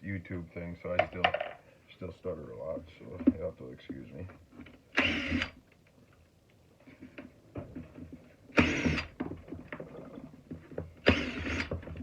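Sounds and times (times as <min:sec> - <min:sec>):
power driver running: 0:08.6 - 0:09.1, 0:11.0 - 0:11.7.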